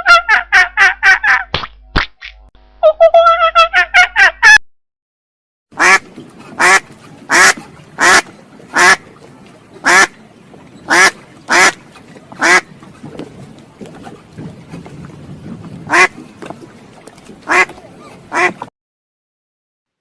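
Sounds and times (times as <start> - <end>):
duck quacking: 5.8 - 9.0, 9.8 - 10.1, 10.9 - 11.8, 12.4 - 12.7, 15.9 - 16.2, 17.5 - 17.7, 18.3 - 18.7.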